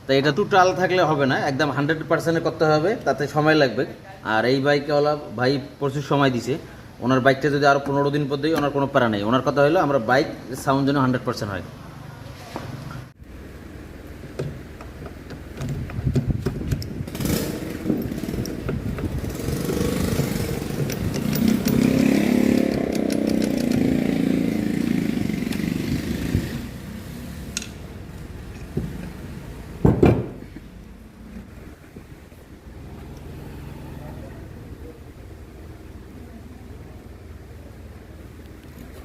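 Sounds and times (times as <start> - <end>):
motorcycle engine running: 16.3 - 27.0.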